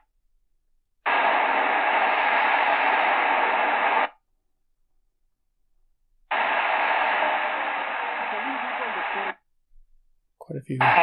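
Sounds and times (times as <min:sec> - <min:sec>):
static-filled radio signal: 0:01.1 - 0:04.1, 0:06.3 - 0:09.4, 0:10.7 - 0:11.0.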